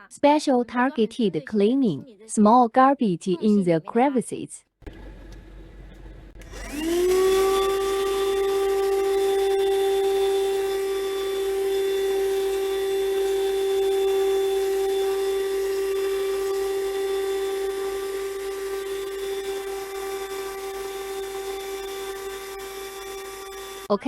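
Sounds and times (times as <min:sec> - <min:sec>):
vacuum cleaner motor whine: 0:04.9 - 0:23.9.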